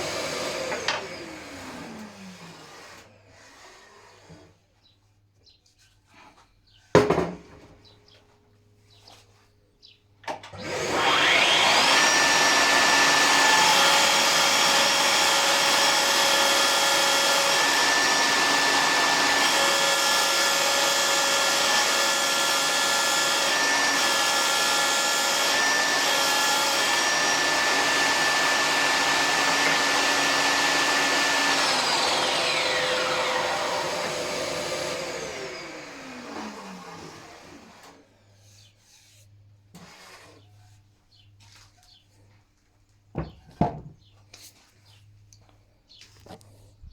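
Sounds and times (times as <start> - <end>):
circular saw whining and cutting: 0.0 - 4.5, 10.5 - 38.0.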